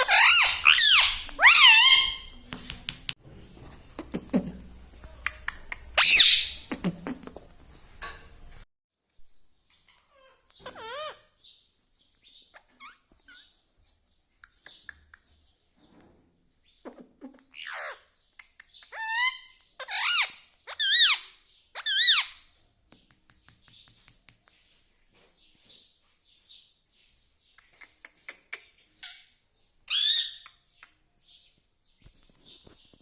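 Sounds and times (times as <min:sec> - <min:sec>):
parakeet loud squawks: 0:00.0 - 0:02.3, 0:06.0 - 0:06.6, 0:19.0 - 0:22.4
parakeet warbling call: 0:00.0 - 0:02.4, 0:06.0 - 0:06.7
parakeet chirps and clicks: 0:00.0 - 0:03.2, 0:14.4 - 0:15.3, 0:16.8 - 0:21.2, 0:27.5 - 0:29.2, 0:29.9 - 0:31.0.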